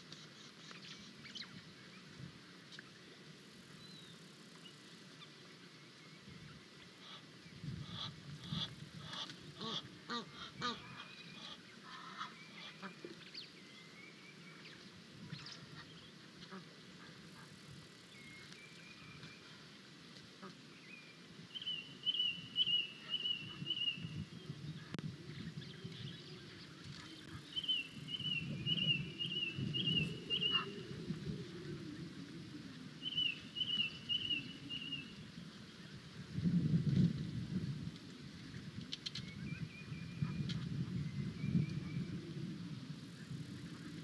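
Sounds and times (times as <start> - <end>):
birds chirping: 20.8 - 31.0.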